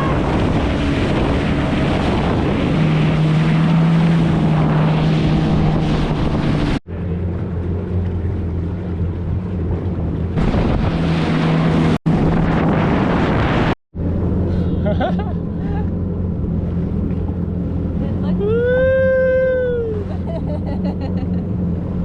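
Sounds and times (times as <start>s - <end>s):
wind on microphone: 0.0s - 6.8s, 9.7s - 14.5s
rushing water: 0.0s - 20.6s
jet ski engine running: 0.0s - 22.0s.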